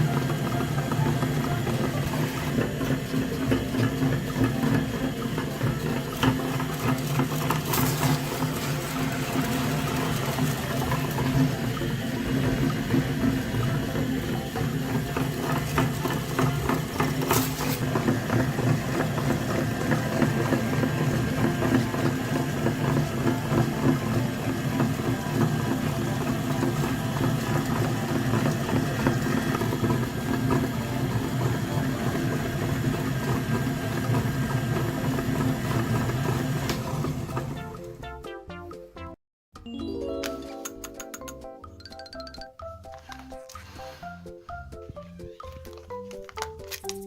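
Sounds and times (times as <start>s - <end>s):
tractor motor running: 0.0s - 37.6s.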